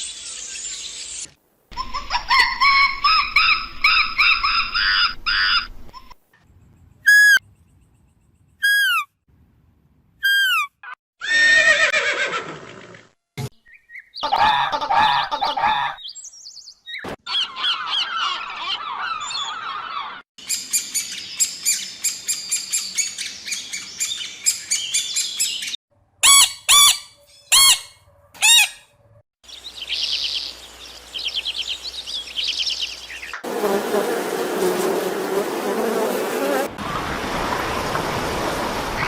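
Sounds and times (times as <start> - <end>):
birds chirping: 13.6 - 37.0
bird trills: 16.0 - 28.9.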